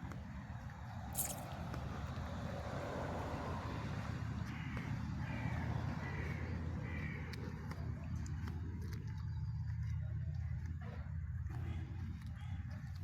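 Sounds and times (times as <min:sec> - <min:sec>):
crow cawing: 0:04.5 - 0:07.4.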